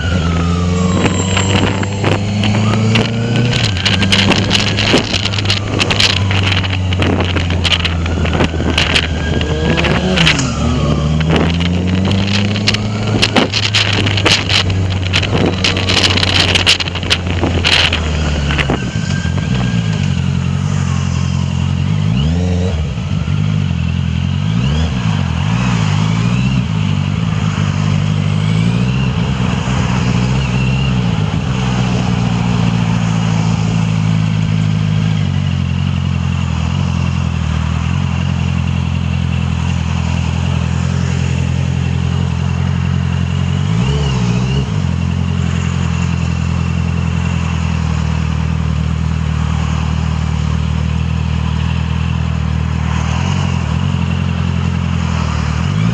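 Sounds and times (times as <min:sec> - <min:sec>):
wind noise on microphone: 0:00.0 - 0:23.3
motorcycle engine revving: 0:00.0 - 0:55.9.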